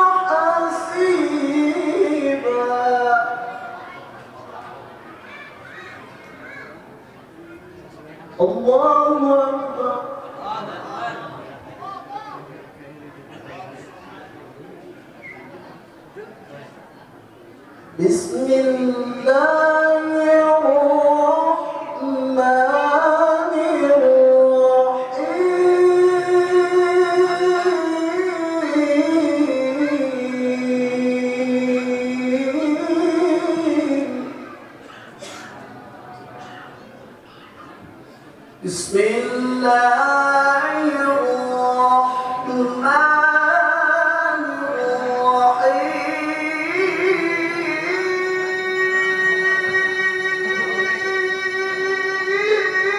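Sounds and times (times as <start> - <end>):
person chanting melodically: 0.0 - 4.9, 18.0 - 34.8, 38.6 - 52.9.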